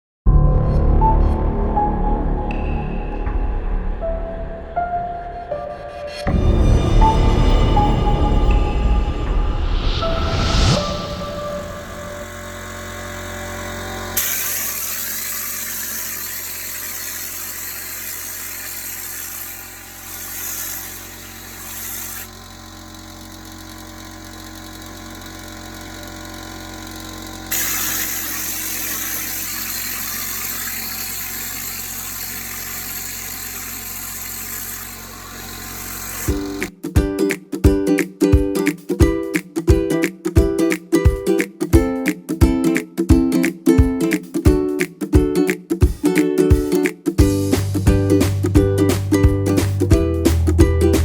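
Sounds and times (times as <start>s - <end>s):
motor hum: 10.3s - 36.8s
hiss of sprayed mortar: 11.6s - 22.4s, 27.5s - 36.7s.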